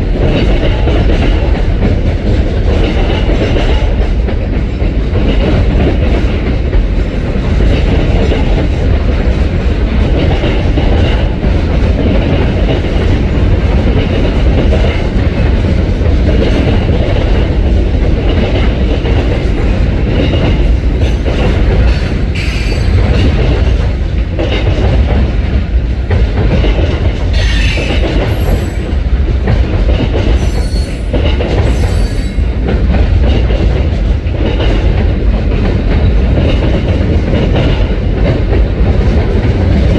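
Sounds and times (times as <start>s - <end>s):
freight train rumbling: 0.0s - 39.9s
high wheel squeals: 31.7s - 32.5s.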